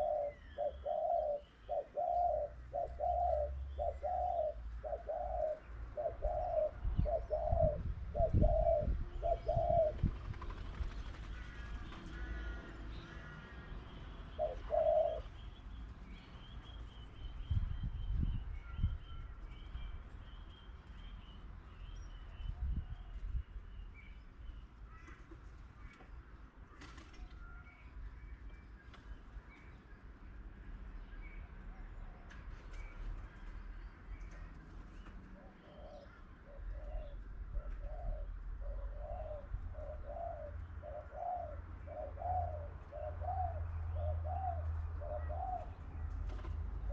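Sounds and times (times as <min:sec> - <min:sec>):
dove cooing: 0:00.0 - 0:15.4, 0:35.3 - 0:46.9
small birds chirping: 0:00.0 - 0:26.6.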